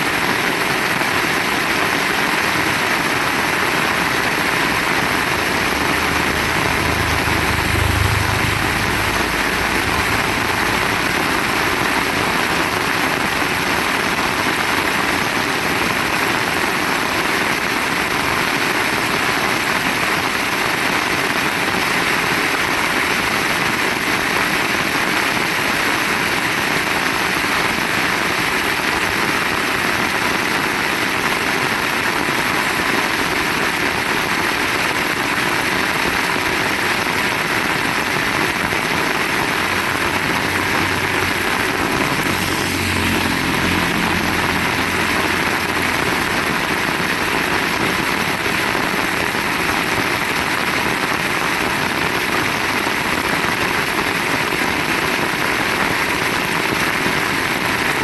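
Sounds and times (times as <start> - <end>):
heavy rain pouring: 0.0 - 58.0
low rumble: 3.2 - 14.0, 37.7 - 49.6.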